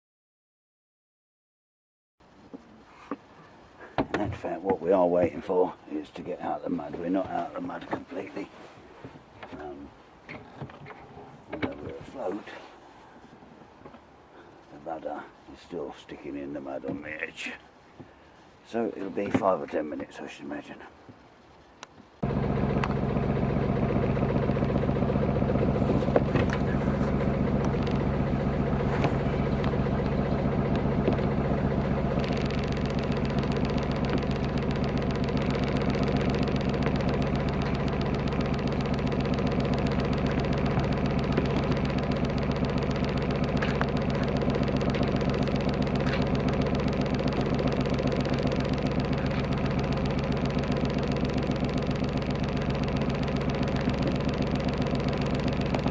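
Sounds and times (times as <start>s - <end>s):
boat engine idling: 22.2s - 55.9s.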